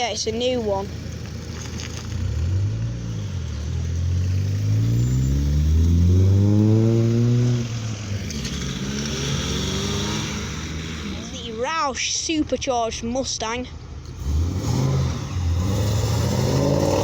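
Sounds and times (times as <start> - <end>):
car engine accelerating away: 1.0 - 11.4, 14.1 - 17.0.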